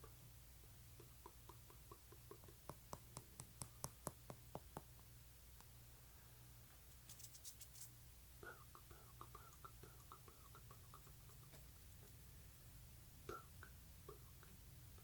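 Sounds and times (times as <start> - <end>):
soft asmr clicks and taps: 1.0 - 5.8.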